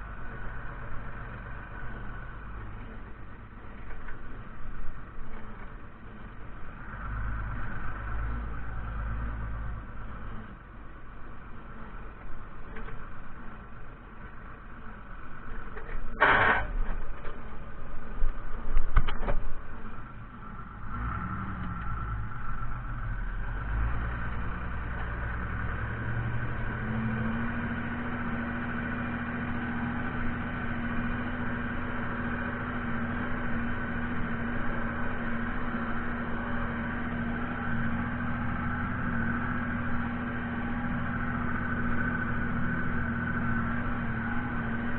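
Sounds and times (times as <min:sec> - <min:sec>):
tractor diesel engine running: 0:00.0 - 0:44.9
loud clatter: 0:15.8 - 0:17.4.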